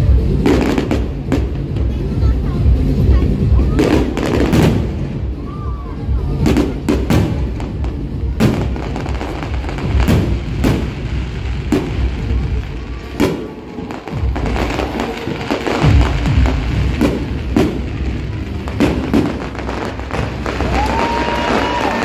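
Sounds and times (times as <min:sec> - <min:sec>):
fireworks bursting bangs: 0:00.0 - 0:22.0.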